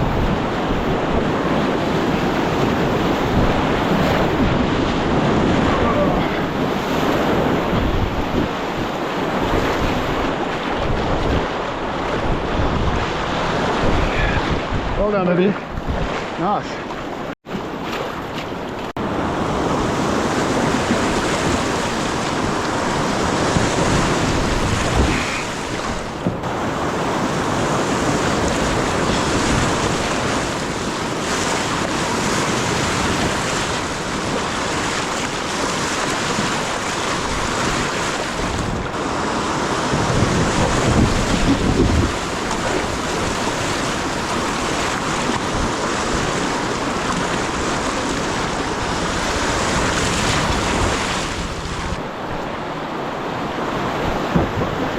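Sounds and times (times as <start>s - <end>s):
wind buffeting microphone: 0.0s - 16.4s, 18.6s - 54.9s
river water rushing: 18.7s - 54.9s.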